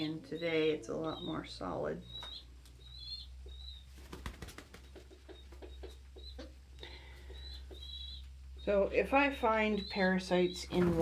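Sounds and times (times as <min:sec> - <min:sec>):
pigeon squabs peeping: 0:02.0 - 0:06.6, 0:07.2 - 0:08.4.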